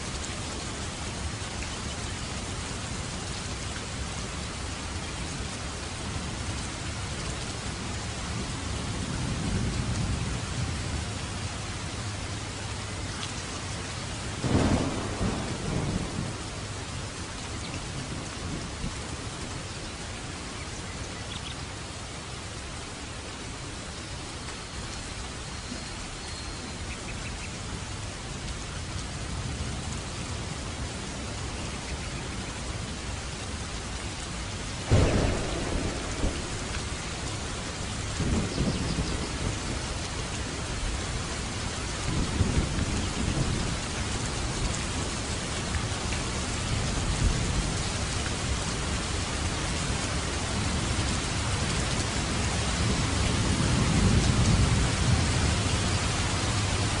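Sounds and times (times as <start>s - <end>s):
steady rain: 0.0s - 57.0s
thunder clap: 14.4s - 16.6s, 34.9s - 39.9s
rolling thunder rumbles: 14.4s - 19.4s, 34.8s - 49.1s, 52.4s - 57.0s.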